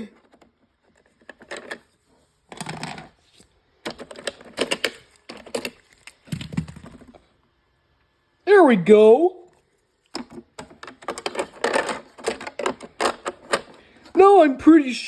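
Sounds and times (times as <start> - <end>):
plastic clicks and rattles: 3.8 - 7.2, 10.1 - 13.8.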